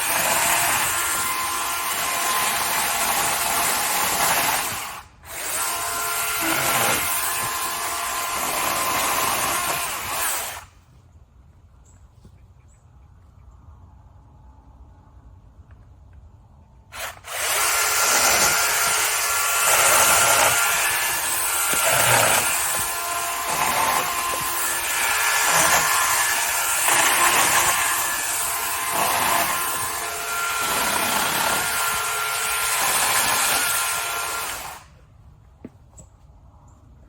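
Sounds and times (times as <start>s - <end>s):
electric chainsaw cutting wood: 0.0s - 10.7s, 16.9s - 35.0s.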